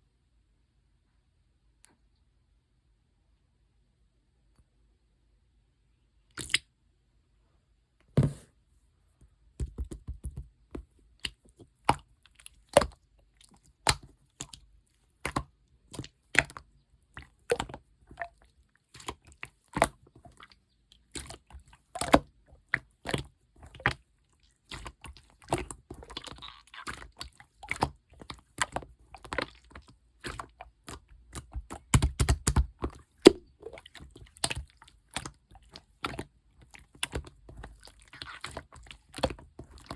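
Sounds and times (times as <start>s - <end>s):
slime clicking and popping: 6.4s - 6.6s, 24.7s - 36.3s.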